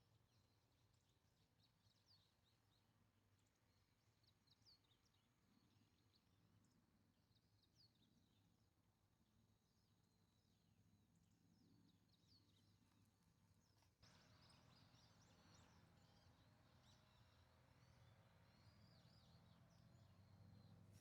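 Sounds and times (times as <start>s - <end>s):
faint birds chirping: 9.7s - 21.0s.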